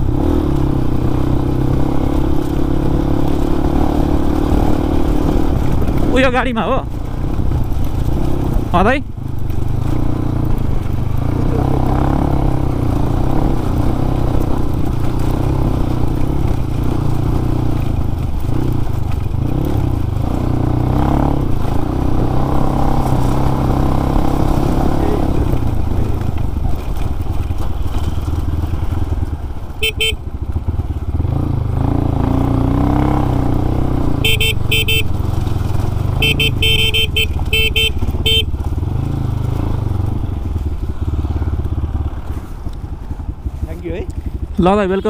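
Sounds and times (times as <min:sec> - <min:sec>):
motorcycle engine rumble: 0:00.0 - 0:45.0
vehicle horn toots: 0:29.8 - 0:30.2, 0:34.2 - 0:35.2, 0:36.2 - 0:38.6.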